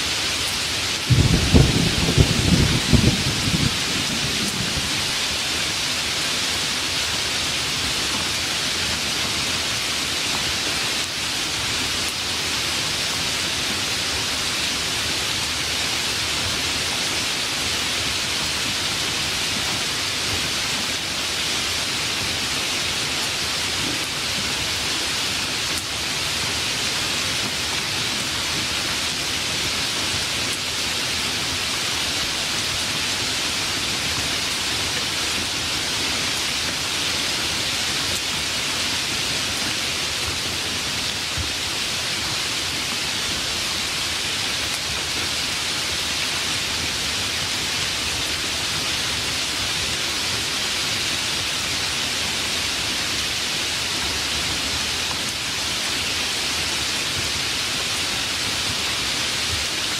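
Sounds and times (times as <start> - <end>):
steady rain hiss: 0.0 - 59.9
thunder rumble: 1.0 - 5.4.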